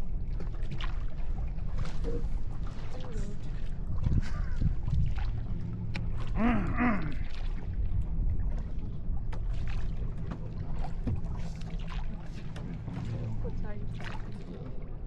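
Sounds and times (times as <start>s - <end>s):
boat engine humming: 0.0s - 15.0s
person vocal sound: 6.4s - 7.2s.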